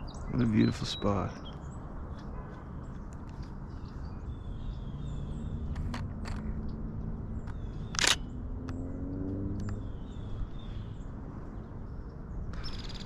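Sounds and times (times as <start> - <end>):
camera shutter clicking: 7.9 - 8.3
faint bird chirps: 12.5 - 13.0.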